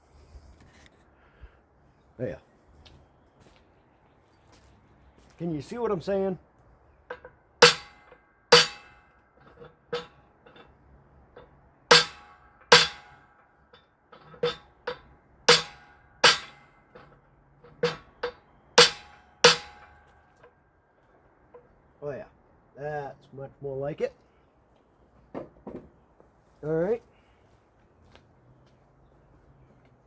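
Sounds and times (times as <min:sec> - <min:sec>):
hammer striking metal: 0:07.1 - 0:10.7, 0:11.4 - 0:13.4, 0:14.2 - 0:20.2.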